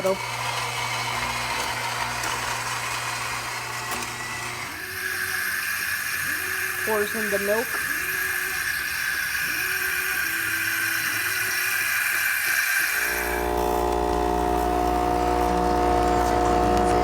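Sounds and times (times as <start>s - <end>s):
milk frother hissing: 0.0s - 17.0s
machine hum with held tones: 12.8s - 17.0s.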